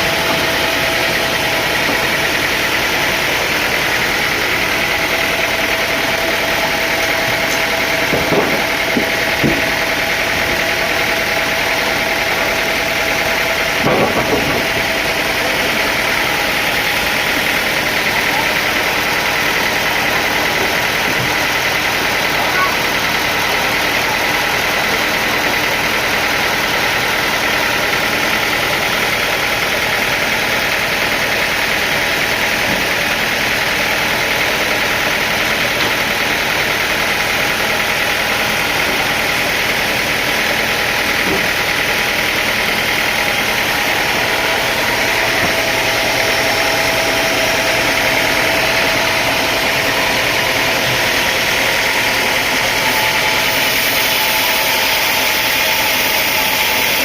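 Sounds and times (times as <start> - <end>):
sawmill machinery drone: 0.0 - 57.0.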